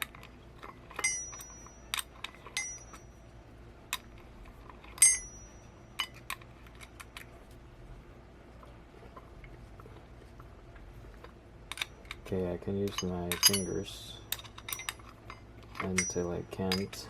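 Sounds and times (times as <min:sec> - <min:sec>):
metal parts clinking: 0:00.0 - 0:03.1, 0:03.9 - 0:07.3, 0:11.7 - 0:17.0.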